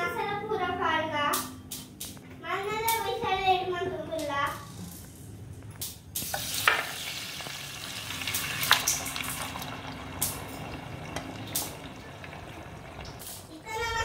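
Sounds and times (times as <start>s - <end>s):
meat sizzling in hot oil: 6.2s - 13.6s.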